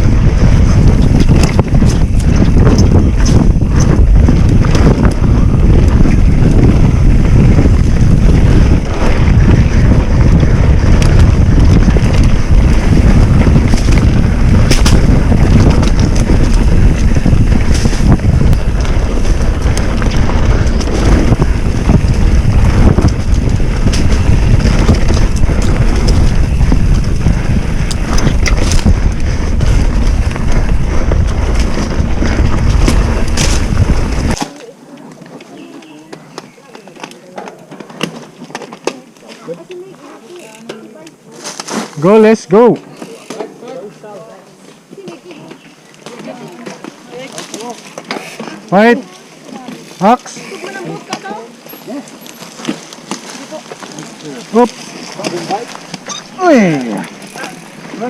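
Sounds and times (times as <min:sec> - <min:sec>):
wind buffeting microphone: 0:00.0 - 0:34.4.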